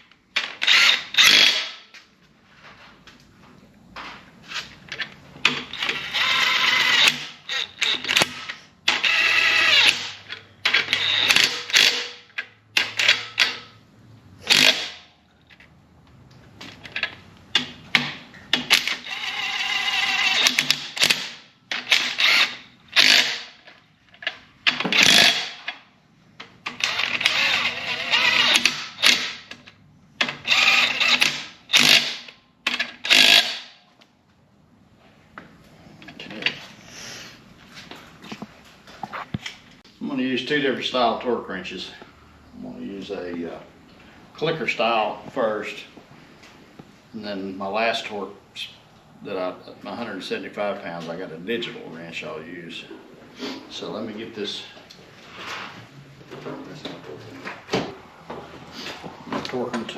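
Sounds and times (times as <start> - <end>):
ratchet wrench clicking: 18.7 - 23.5.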